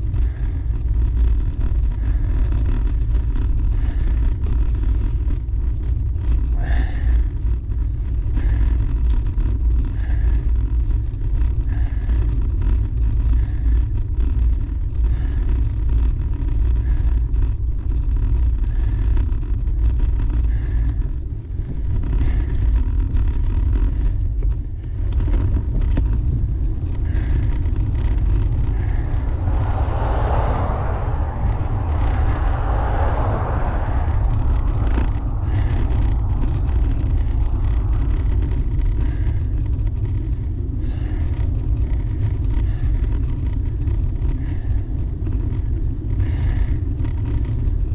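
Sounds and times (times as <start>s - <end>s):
road noise: 0.0s - 7.6s, 24.8s - 47.8s
wind buffeting microphone: 0.0s - 47.9s.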